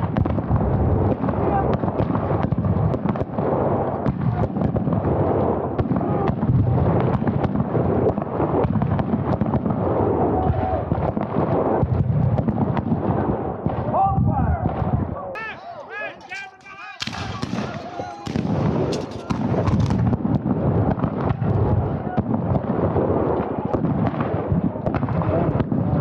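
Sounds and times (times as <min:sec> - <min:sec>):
black-powder gunfire cracks: 0:17.0 - 0:25.7.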